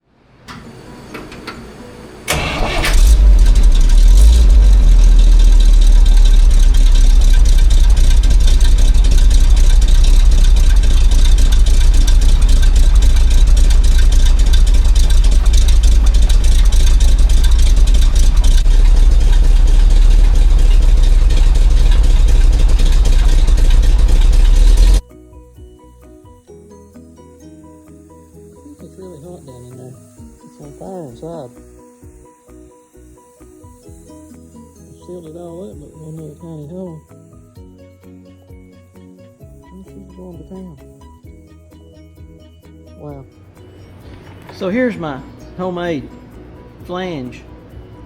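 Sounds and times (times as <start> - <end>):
engine cranking: 2.3 - 25.0
truck engine running loud: 2.3 - 25.0.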